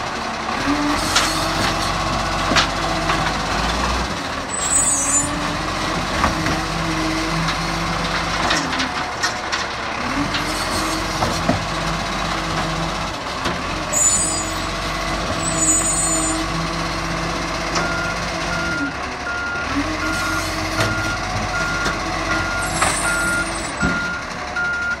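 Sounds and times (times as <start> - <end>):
truck engine revving: 0.0 - 25.0
reversing alarm beeping: 17.8 - 25.0.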